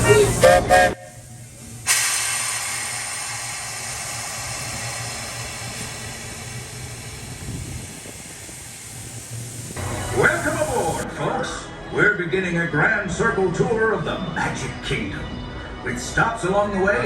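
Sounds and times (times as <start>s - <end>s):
locomotive steam hissing: 0.0s - 11.1s
steady low hum: 0.0s - 11.1s.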